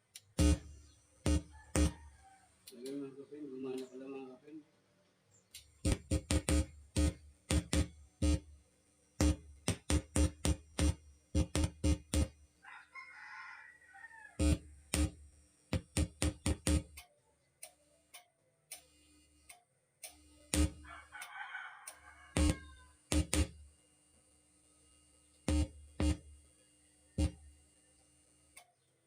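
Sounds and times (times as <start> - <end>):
rooster crowing: 1.3 - 2.6, 12.6 - 14.6, 20.8 - 23.0.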